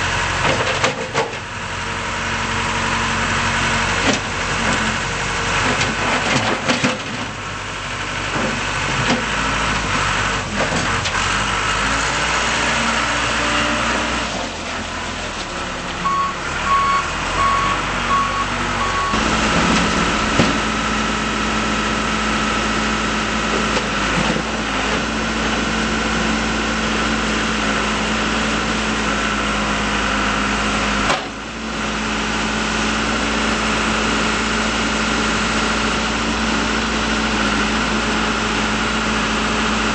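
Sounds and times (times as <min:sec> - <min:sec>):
backhoe diesel engine running: 0:00.0 - 0:39.9
evenly spaced beeps: 0:16.1 - 0:19.2.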